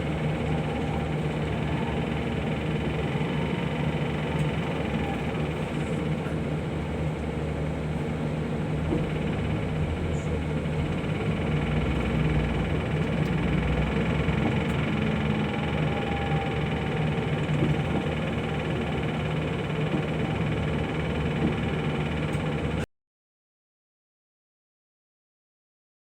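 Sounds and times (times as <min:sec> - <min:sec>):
road noise: 0:00.0 - 0:22.7
vehicle engine hum: 0:00.0 - 0:22.9.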